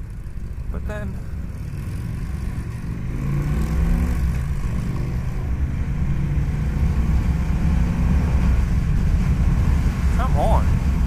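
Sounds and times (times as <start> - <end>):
motorcycle v-twin engine: 0.0 - 11.0
wind rush: 3.0 - 11.0.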